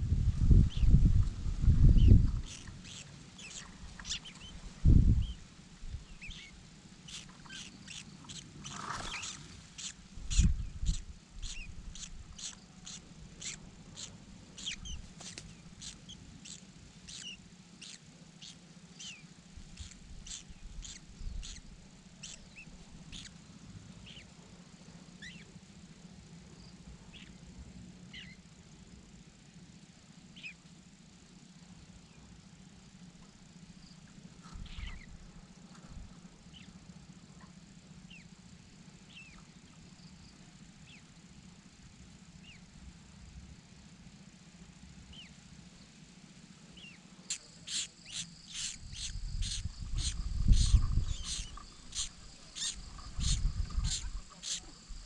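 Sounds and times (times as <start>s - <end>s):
birds chirping: 1.8s - 24.4s, 25.2s - 25.5s, 26.6s - 27.4s, 28.1s - 28.5s, 30.4s - 30.6s, 33.8s - 38.4s, 39.1s - 41.5s, 46.8s - 55.0s.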